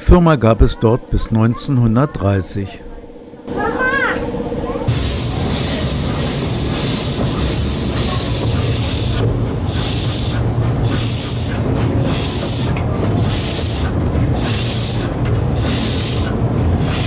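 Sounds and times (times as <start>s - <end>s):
steady low hum: 0.0s - 17.0s
steam exhaust hissing: 3.8s - 17.0s.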